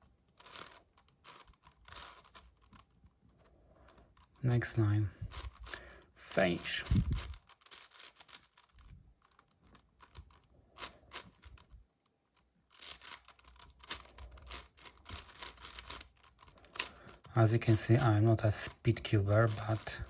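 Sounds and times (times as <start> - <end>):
puzzle cube clicking and scraping: 0.0 - 20.0.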